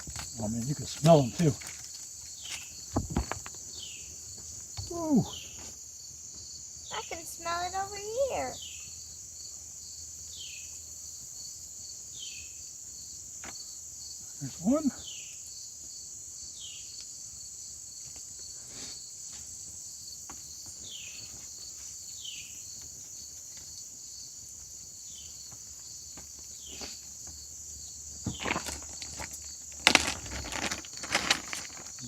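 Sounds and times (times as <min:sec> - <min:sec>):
handling knocks and clatter: 0:00.0 - 0:03.6, 0:28.2 - 0:32.0
crickets chirping: 0:00.0 - 0:32.0.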